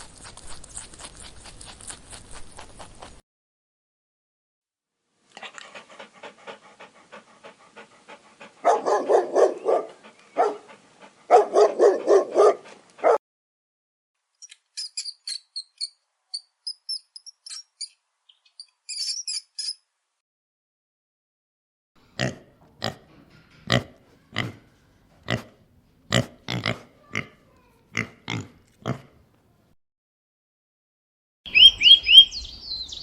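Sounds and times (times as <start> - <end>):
dog barking: 8.6 - 10.7, 11.3 - 13.2
short high-pitched squeaks: 14.4 - 18.0, 18.6 - 19.8.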